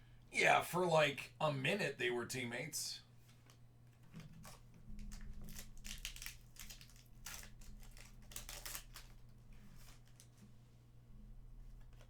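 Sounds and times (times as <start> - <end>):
faint steady hum: 0.0 - 12.0
card wrappers crinkling: 3.2 - 10.4.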